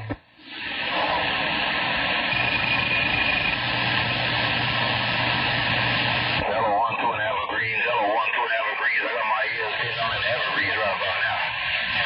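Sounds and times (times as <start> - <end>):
radio static hiss: 0.0 - 12.0
low hum: 1.0 - 6.5.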